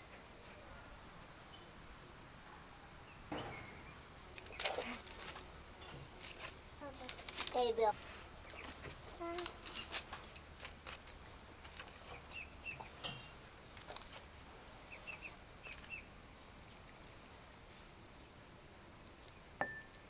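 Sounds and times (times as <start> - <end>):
high insect hum: 0.0 - 20.0
light clicks and knocks: 3.3 - 14.4.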